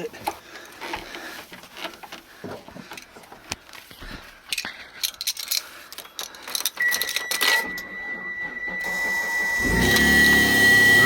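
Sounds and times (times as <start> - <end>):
car keys jangling: 4.5 - 7.9.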